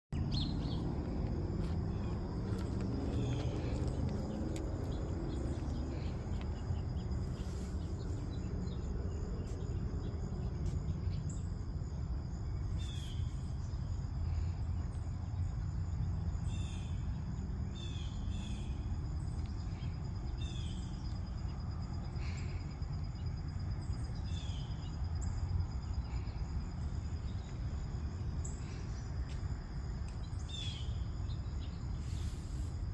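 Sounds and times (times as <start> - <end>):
strong low rumble: 0.1 - 12.6
bird chirps: 0.2 - 0.9
high insect trill: 0.2 - 32.9.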